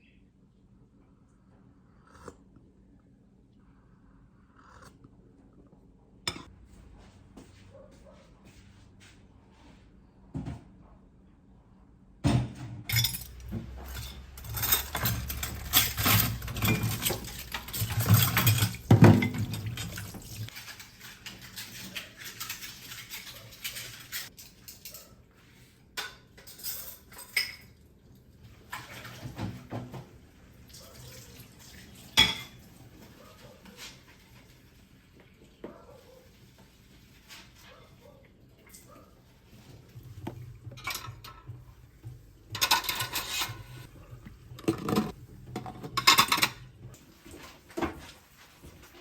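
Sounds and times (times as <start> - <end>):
dishes clattering in a sink: 6.3 - 6.5, 12.3 - 25.1, 25.9 - 27.8, 28.5 - 34.2, 37.7 - 49.0
dishes clinking: 6.3 - 6.5, 12.9 - 25.0, 26.0 - 27.8, 32.1 - 32.6, 40.3 - 46.7.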